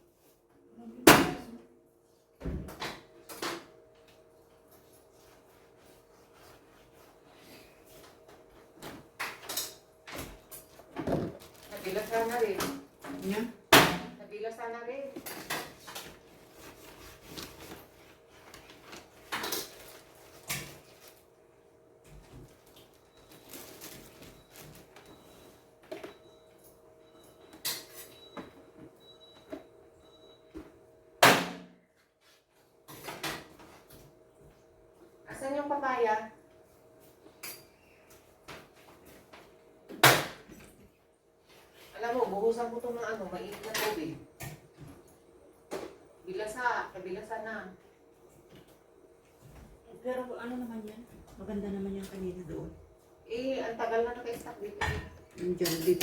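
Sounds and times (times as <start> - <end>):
kitchen items clattering: 8.9 - 13.5, 54.8 - 56.0.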